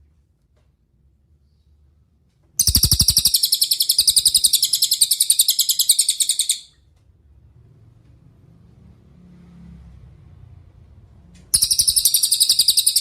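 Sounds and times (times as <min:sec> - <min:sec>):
songbird high trill: 0:02.6 - 0:06.7, 0:11.6 - 0:13.0.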